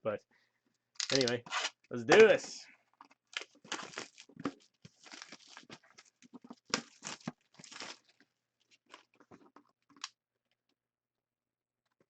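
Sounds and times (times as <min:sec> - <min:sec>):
plastic wrapping tearing and crinkling: 0:03.3 - 0:08.2.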